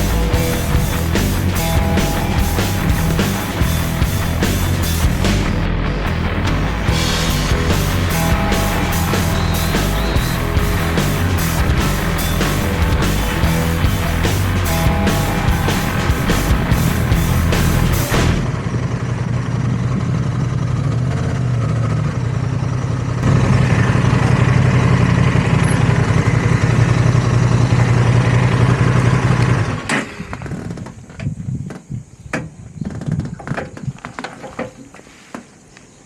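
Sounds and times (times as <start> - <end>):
motorcycle engine running: 0.0 - 30.8.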